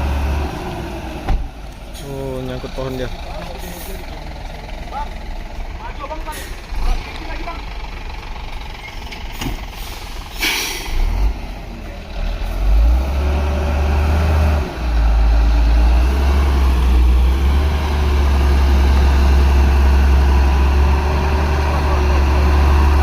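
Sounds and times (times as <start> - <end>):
diesel truck engine running: 0.0 - 23.0
air brakes hissing: 9.3 - 11.1.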